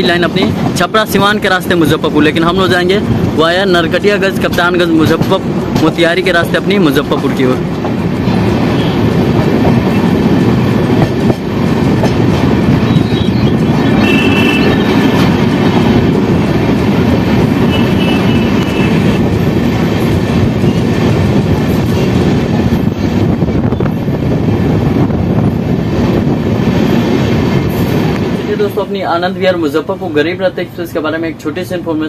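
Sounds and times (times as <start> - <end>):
train wheels rumbling on rail: 0.0 - 32.0
high wheel squeal: 12.7 - 15.2.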